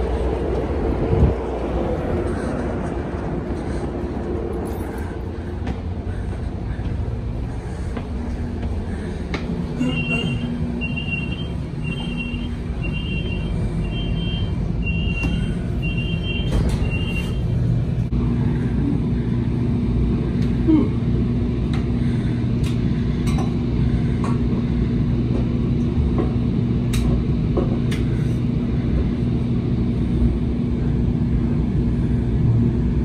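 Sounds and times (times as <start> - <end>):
train rumble: 0.0 - 33.0
two-tone door warning beep: 9.8 - 17.5.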